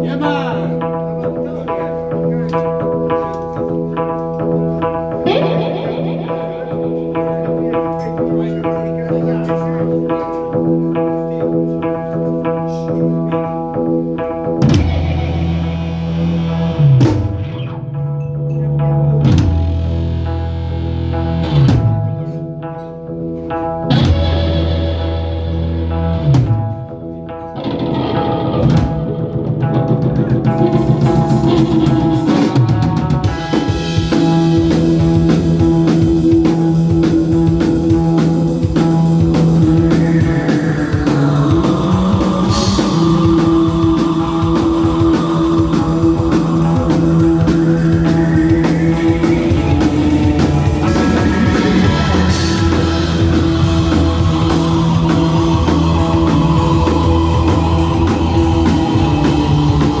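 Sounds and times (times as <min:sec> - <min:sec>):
drum kit: 0:00.0 - 1:00.0
electric guitars: 0:00.0 - 1:00.0
sustained bass notes: 0:00.0 - 1:00.0
high tone sweeping in pitch: 0:33.3 - 1:00.0.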